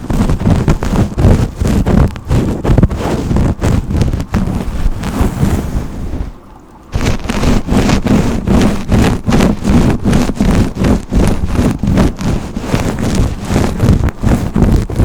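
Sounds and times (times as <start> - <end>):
hairbrush strokes through hair: 0.0 - 6.0, 7.0 - 15.0.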